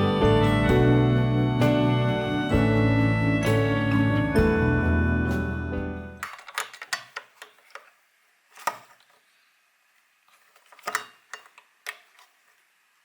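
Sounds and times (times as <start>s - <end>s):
dishes and utensils clicking: 10.6s - 12.3s.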